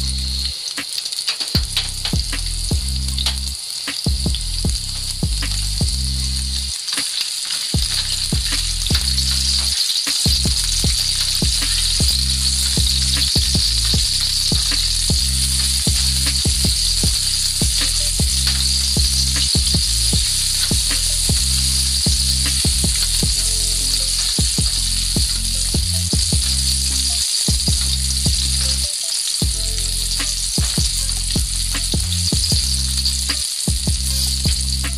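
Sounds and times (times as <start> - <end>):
shallots and garlic sizzling in oil: 0.0 - 34.9.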